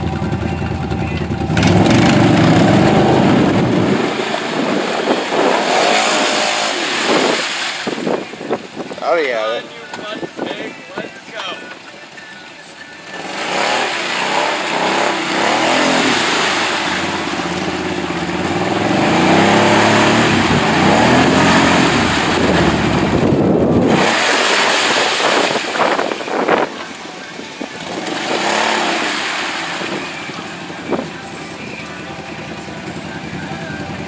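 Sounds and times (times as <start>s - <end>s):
atv engine revving: 0.0s - 9.1s, 13.0s - 34.0s
dense rushing noise: 1.4s - 9.3s, 13.3s - 32.2s.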